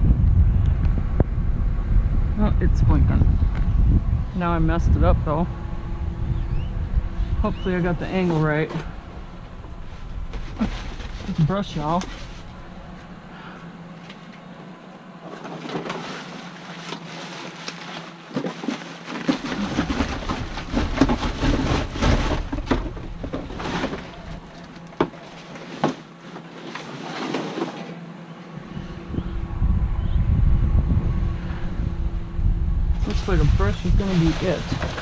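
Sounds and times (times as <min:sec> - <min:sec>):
wind buffeting microphone: 0:00.0 - 0:13.9, 0:28.6 - 0:35.0
rummaging through trash: 0:07.3 - 0:28.3, 0:33.0 - 0:35.0.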